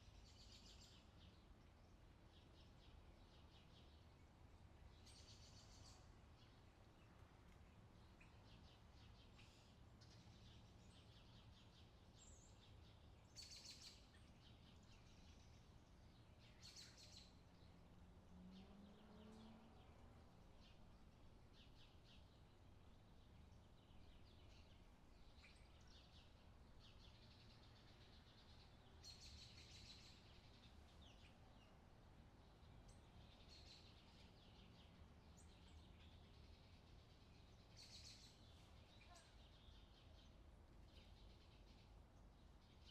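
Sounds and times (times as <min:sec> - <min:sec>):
low steady background hum: 0:00.0 - 0:42.9
small birds chirping: 0:00.0 - 0:42.9.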